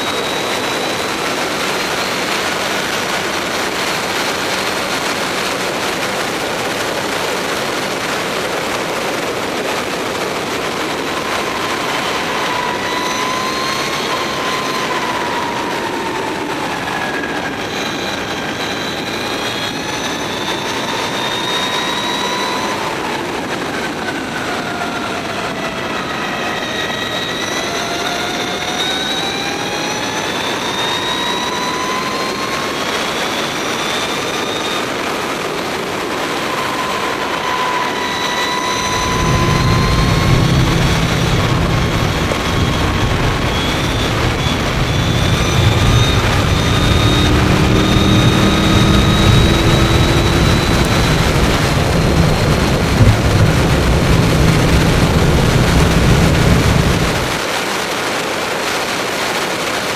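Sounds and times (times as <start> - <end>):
wind noise: 35.6 - 57.6
electric motorcycle motor whining: 37.4 - 57.4
heavy low rumble: 38.6 - 57.5.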